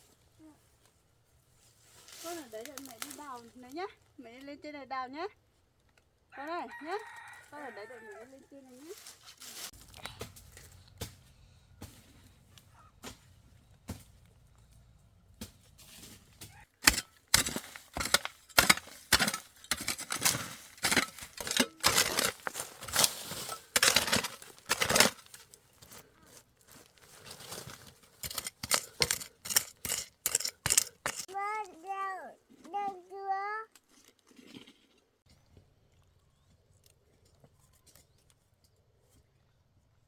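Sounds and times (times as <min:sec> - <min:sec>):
digging tool striking earth: 0:15.4 - 0:26.1, 0:27.3 - 0:31.4.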